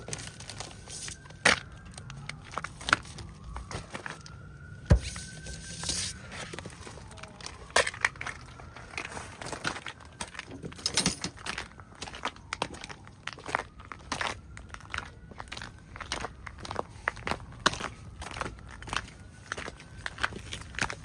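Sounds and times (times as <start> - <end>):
footsteps crunching on snow: 4.9 - 7.1.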